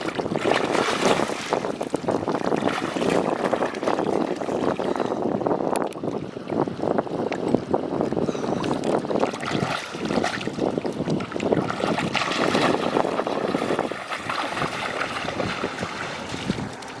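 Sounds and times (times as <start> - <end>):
water splashing and sloshing: 0.0 - 17.0
wind buffeting microphone: 0.0 - 17.0.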